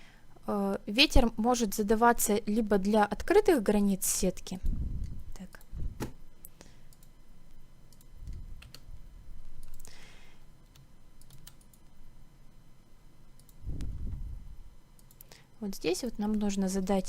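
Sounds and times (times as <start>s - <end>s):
computer keyboard and mouse clicks: 7.9s - 8.8s, 9.6s - 9.9s, 10.7s - 11.9s.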